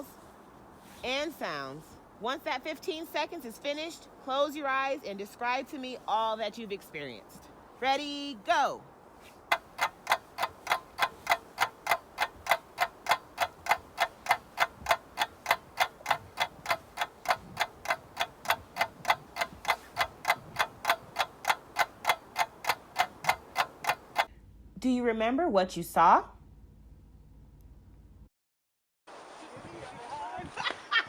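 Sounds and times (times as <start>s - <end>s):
clock ticking: 9.5s - 24.3s.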